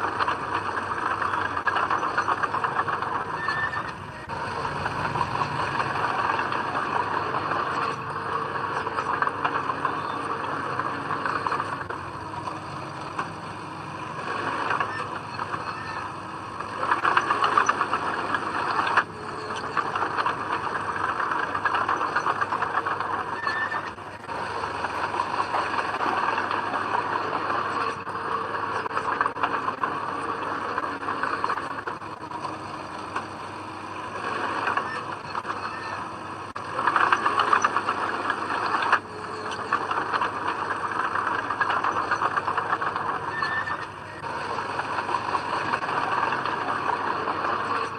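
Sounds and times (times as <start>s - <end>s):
bulldozer diesel engine: 0.0s - 47.9s
steel tracks running: 0.0s - 47.9s.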